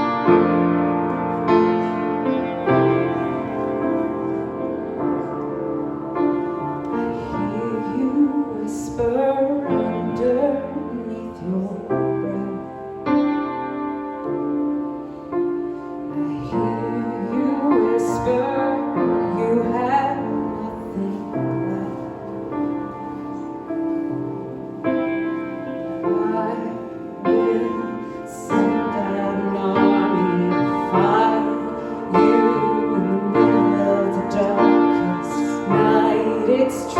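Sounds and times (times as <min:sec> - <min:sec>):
piano chords: 0:00.0 - 0:36.9
woman singing: 0:06.8 - 0:13.0, 0:16.1 - 0:23.4, 0:25.6 - 0:36.9.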